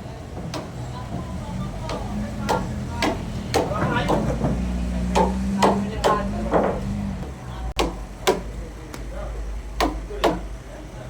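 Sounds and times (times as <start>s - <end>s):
sharp knocks and bangs: 0.4s - 7.1s, 7.8s - 8.5s.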